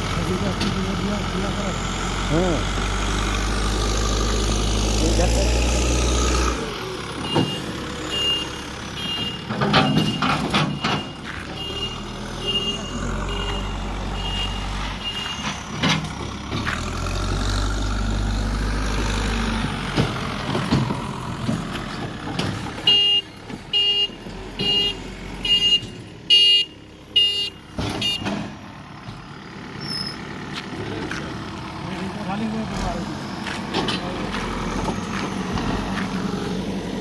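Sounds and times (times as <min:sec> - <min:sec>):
heavy diesel engine running: 0:00.0 - 0:37.0
loud beeps: 0:07.2 - 0:15.6, 0:22.9 - 0:28.3.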